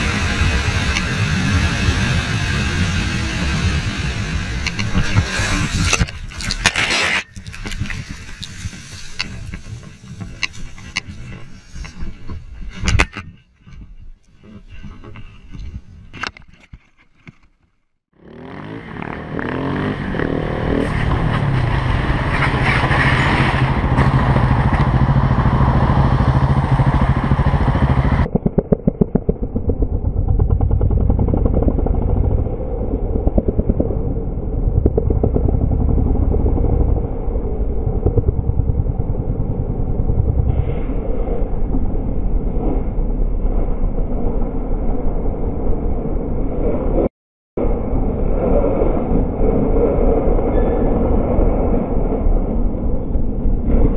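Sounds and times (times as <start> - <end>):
motorcycle engine revving: 0.0 - 6.1, 18.2 - 41.0
wind rushing: 0.0 - 16.1, 19.4 - 28.6.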